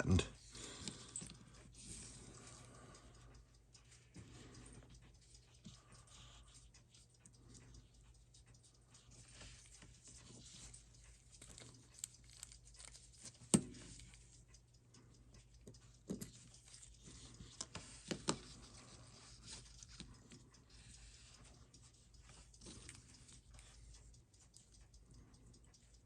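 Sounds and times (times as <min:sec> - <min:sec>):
small tools clicking and tapping: 0:08.6 - 0:26.0.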